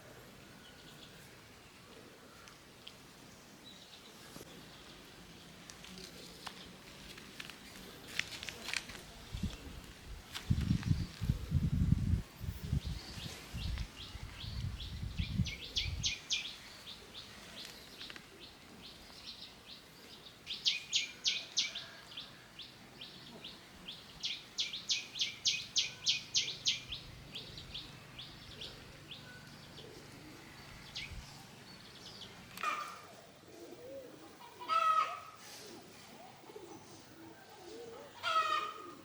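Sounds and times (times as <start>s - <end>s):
rustling: 5.6s - 11.5s.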